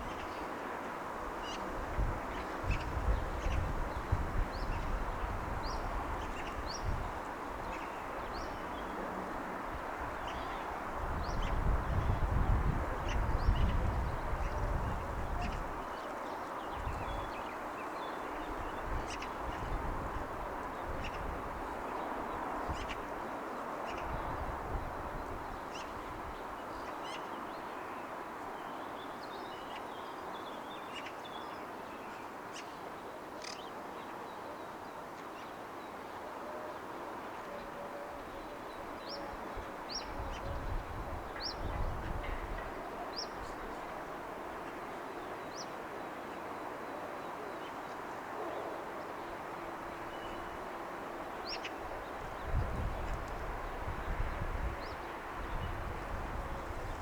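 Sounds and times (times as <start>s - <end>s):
distant wash of city noise: 17.3s - 57.0s.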